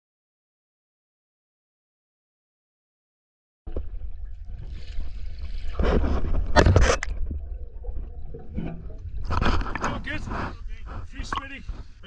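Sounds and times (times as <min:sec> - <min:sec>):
water splash: 0:03.7 - 0:10.4
water sloshing and gurgling: 0:03.7 - 0:12.0.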